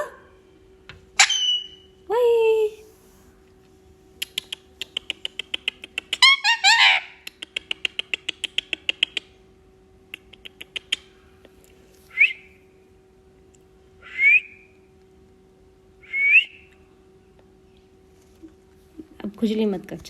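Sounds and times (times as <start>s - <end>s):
parrot rising whistles: 1.2s - 1.9s, 12.1s - 12.6s, 14.0s - 14.8s, 16.0s - 16.7s
parrot squawk: 1.2s - 1.9s, 6.1s - 7.2s
parrot clicking chatter: 4.2s - 9.4s, 10.1s - 11.2s.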